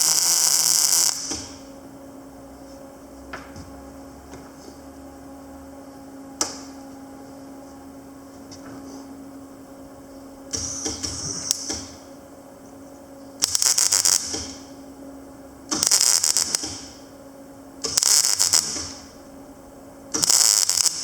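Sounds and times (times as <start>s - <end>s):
welding arc crackle: 0.0s - 1.7s, 10.5s - 12.0s, 13.4s - 14.7s, 15.7s - 17.1s, 17.8s - 19.2s, 20.1s - 21.0s
welder hum: 0.0s - 21.0s.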